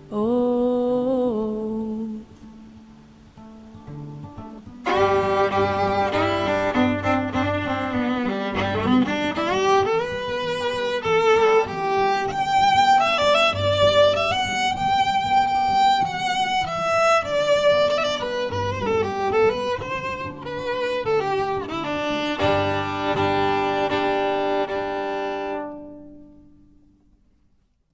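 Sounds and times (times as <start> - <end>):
violin melody: 4.1 - 26.6
low sustained notes: 4.8 - 21.9.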